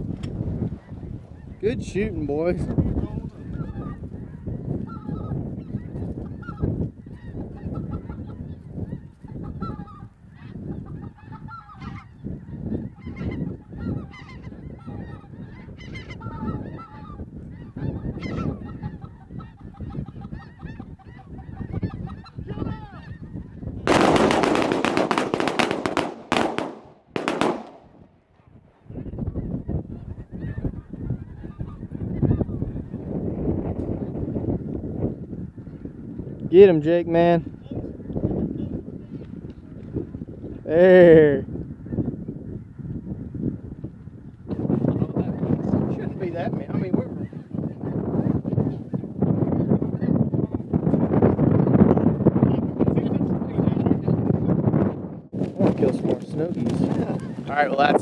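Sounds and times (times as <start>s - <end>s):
flock of geese honking: 2.8s - 26.0s, 28.9s - 33.1s
sharp cracks: 23.9s - 28.1s.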